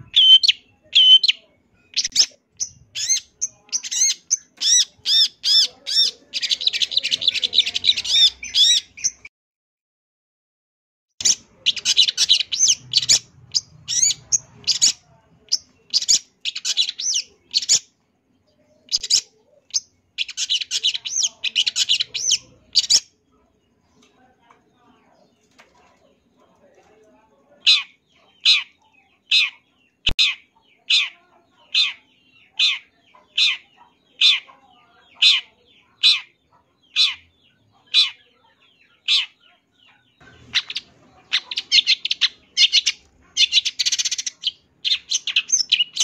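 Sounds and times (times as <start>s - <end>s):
shrike singing: 0.0s - 9.3s, 11.2s - 17.9s, 18.9s - 23.1s, 38.9s - 46.0s.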